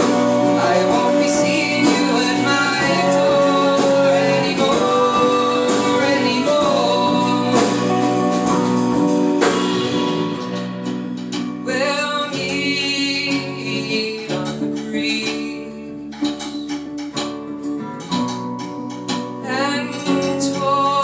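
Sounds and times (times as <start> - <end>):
person singing: 0.0 - 18.5, 19.1 - 21.0
acoustic guitar: 0.0 - 21.0.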